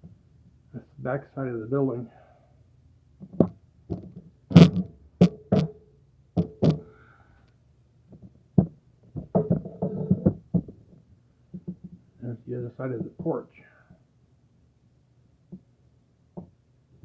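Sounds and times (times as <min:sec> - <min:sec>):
soft knocks and clatter: 0:03.2 - 0:05.8, 0:08.1 - 0:12.1
sharp knocks and clunks: 0:06.4 - 0:06.9, 0:08.2 - 0:12.0.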